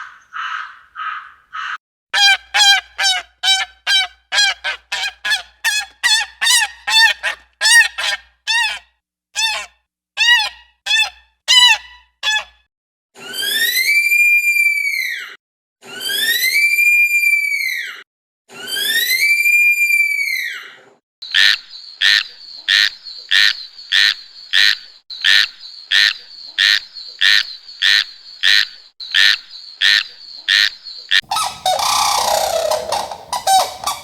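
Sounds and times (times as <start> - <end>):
long rising and falling calls: 31.2 - 34.0
short honking animal calls: 31.2 - 34.0.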